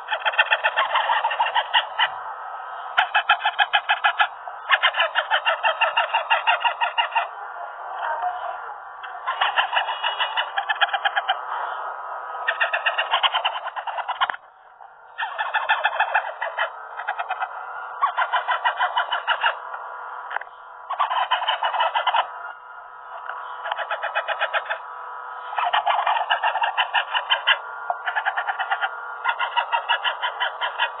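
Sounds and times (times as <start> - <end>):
parakeet chick begging calls: 12.5 - 14.3, 15.1 - 19.6, 25.6 - 31.0.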